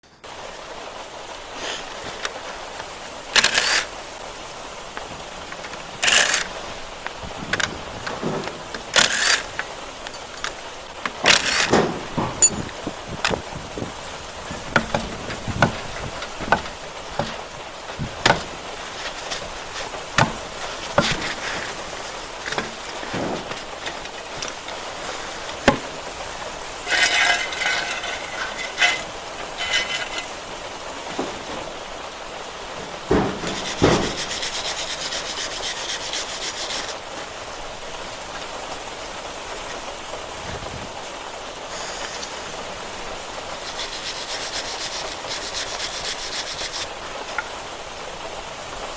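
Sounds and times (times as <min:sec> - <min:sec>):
fast clicking rattle: 0:05.6 - 0:06.6, 0:07.5 - 0:12.6
hand tools knocking on metal: 0:07.5 - 0:13.5, 0:14.4 - 0:18.6, 0:20.2 - 0:21.8, 0:22.4 - 0:31.8, 0:33.1 - 0:34.5.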